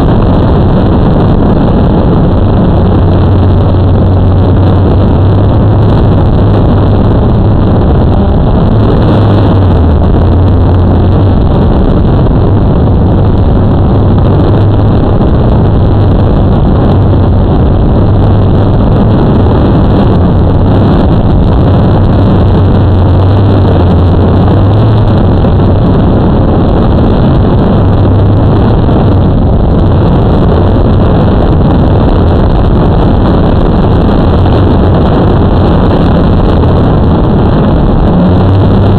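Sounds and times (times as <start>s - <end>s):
wind rush on microphone: 0.0s - 38.9s.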